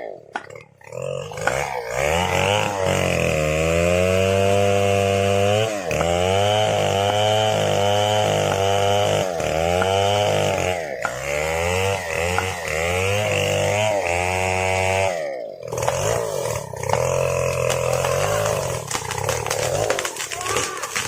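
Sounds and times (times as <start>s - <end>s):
chainsaw cutting at high revs: 0.0s - 21.0s.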